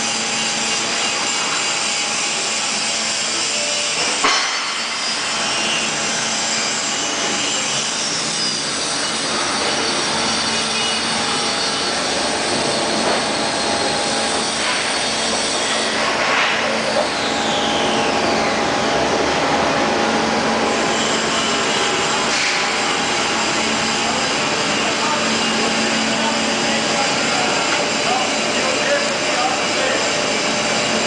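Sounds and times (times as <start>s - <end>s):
grinder machine humming and hissing: 0.0s - 31.0s
high whines falling in pitch: 7.1s - 31.0s.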